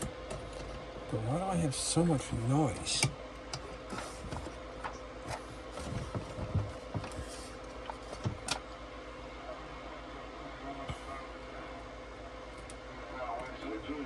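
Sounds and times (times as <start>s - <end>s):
radio static hiss and hum: 9.1s - 14.0s.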